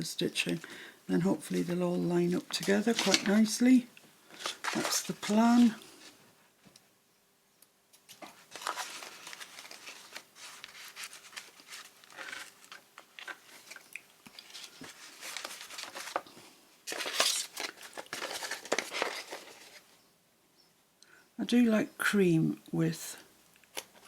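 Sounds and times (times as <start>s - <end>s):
paper rustling and crinkling: 1.4s - 6.2s, 8.0s - 19.9s, 23.7s - 24.0s.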